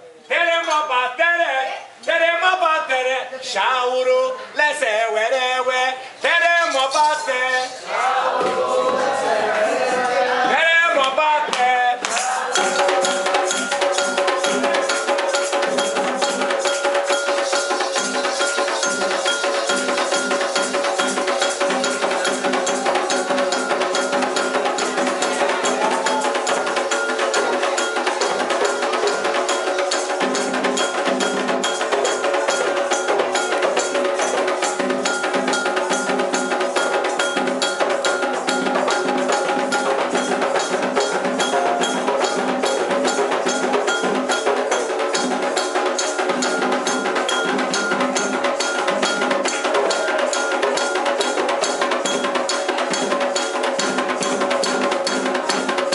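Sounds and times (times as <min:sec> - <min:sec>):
hand drums: 0:06.3 - 0:09.8, 0:10.4 - 0:55.9
struck metal bell: 0:12.6 - 0:55.9.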